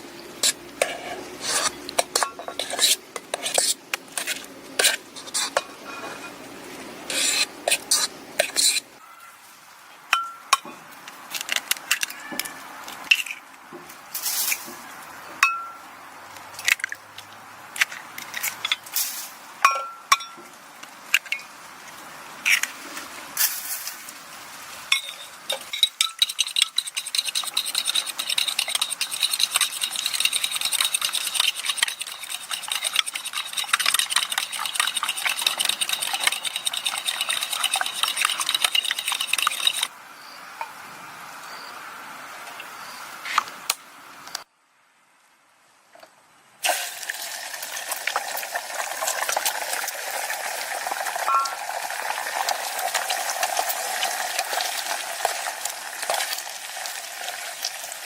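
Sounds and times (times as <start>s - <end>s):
metal utensils scraping a pot: 0.4s - 6.4s, 7.1s - 8.8s, 25.0s - 39.9s, 51.2s - 52.2s
food sizzling in a pan: 46.6s - 58.0s.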